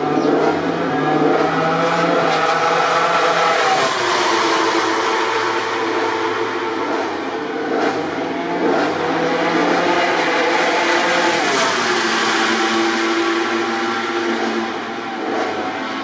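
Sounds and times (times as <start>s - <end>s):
racing motorcycle engines: 0.0s - 16.0s.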